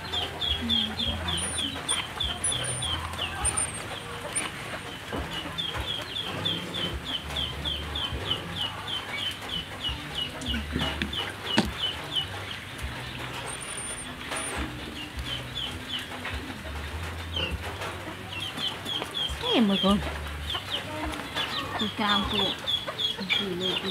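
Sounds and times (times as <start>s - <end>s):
bird chirping falling notes: 0.0s - 16.3s.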